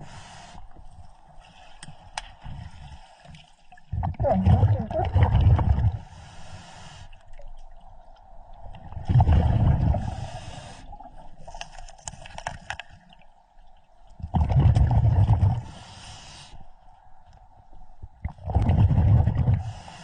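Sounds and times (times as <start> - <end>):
exhaled bubbles rumbling underwater: 3.7 - 6.2, 7.3 - 11.5, 13.2 - 15.8, 17.9 - 20.0
regulator inhalation hiss: 6.1 - 7.2, 10.0 - 11.0, 15.7 - 16.6.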